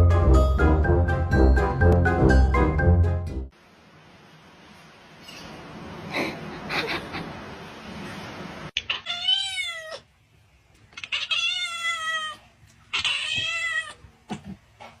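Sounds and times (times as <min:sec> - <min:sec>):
cat meowing: 0:08.8 - 0:10.1, 0:11.0 - 0:14.0.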